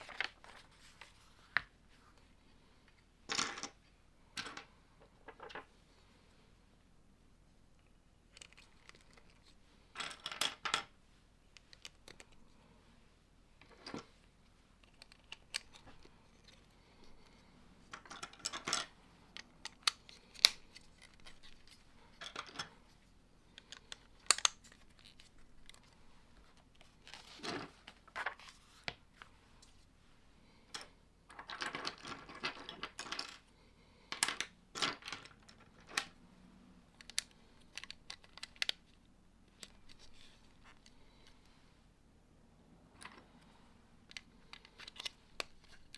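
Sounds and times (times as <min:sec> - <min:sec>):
plastic bricks clicking and rattling: 0:17.9 - 0:22.7, 0:30.8 - 0:33.4.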